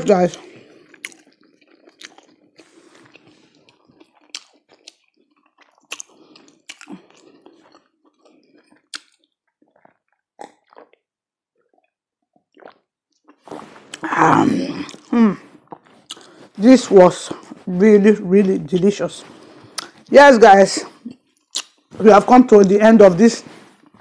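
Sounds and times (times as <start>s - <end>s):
wet chewing and lip smacking: 0.2s - 14.0s, 14.8s - 16.6s, 18.7s - 20.1s, 20.8s - 22.0s.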